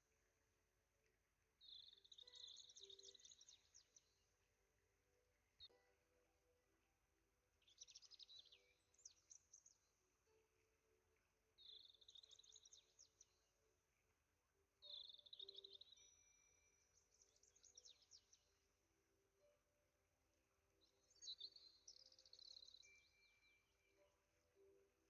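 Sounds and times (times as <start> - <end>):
songbird twittering: 1.6 - 4.2.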